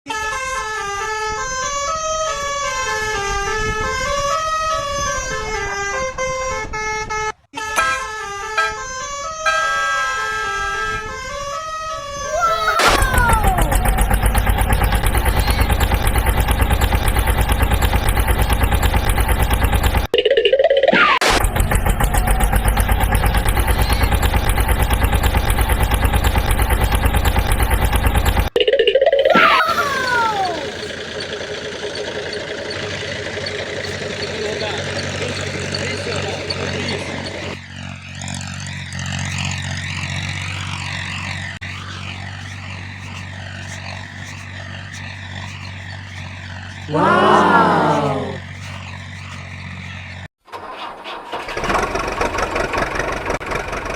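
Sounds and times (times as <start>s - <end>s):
diesel truck engine idling: 12.3s - 20.1s, 21.4s - 28.5s, 29.3s - 50.3s.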